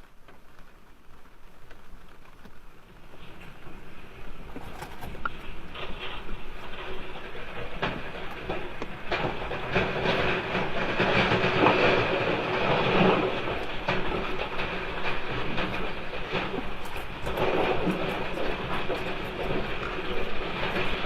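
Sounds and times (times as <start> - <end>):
earthquake rumble: 0.0 - 21.0
rattling and clattering knocks: 4.5 - 21.0.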